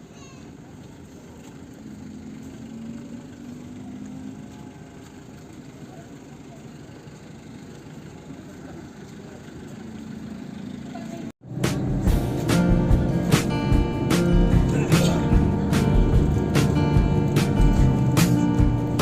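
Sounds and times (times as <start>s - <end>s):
faint voices: 0.0s - 11.3s
vehicle engine idling: 0.0s - 19.0s.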